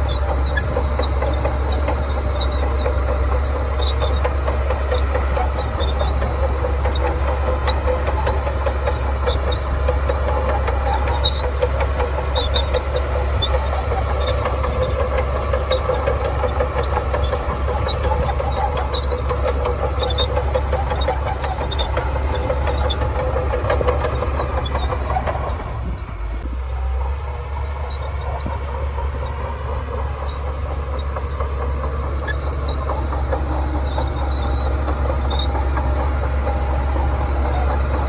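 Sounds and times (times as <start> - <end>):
bulldozer diesel engine running: 0.0 - 38.0.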